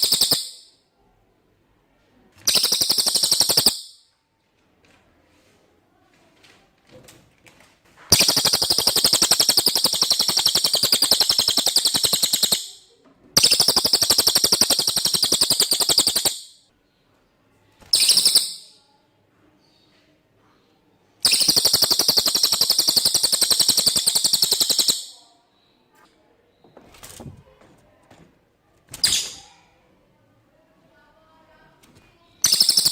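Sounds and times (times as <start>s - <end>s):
high-pitched insect trills: 2.5s - 3.9s, 8.1s - 12.6s, 13.4s - 16.5s, 21.2s - 25.1s, 32.4s - 32.9s.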